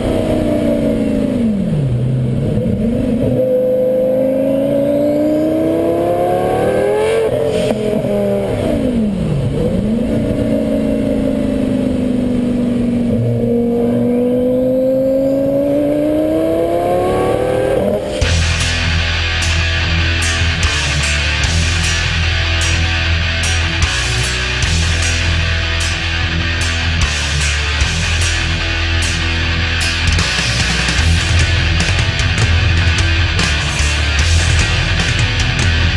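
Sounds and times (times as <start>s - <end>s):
sports car engine accelerating: 0.0s - 35.9s.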